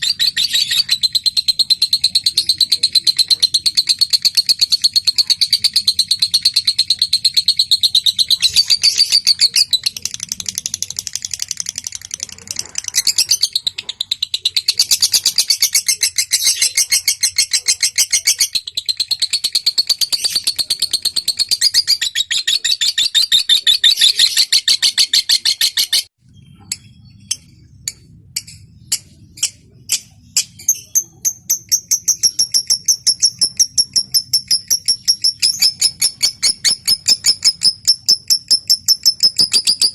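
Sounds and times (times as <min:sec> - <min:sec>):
bird chattering trill: 0:00.0 - 0:39.9.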